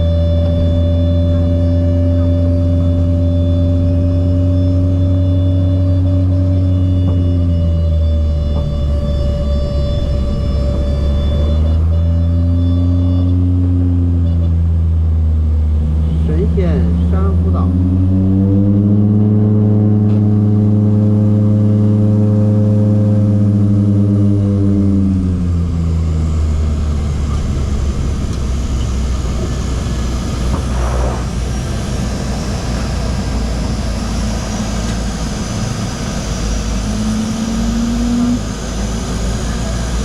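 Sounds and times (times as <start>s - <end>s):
short rising tone: 0.0s - 14.4s, 24.0s - 39.6s
low rumble of airflow: 0.0s - 40.0s
propeller engine droning: 0.0s - 40.0s.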